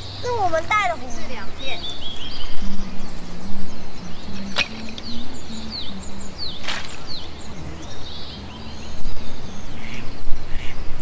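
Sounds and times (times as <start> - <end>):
bird chirping: 0.0 - 11.0
low hum: 0.0 - 11.0
sharp cracks: 6.6 - 7.1.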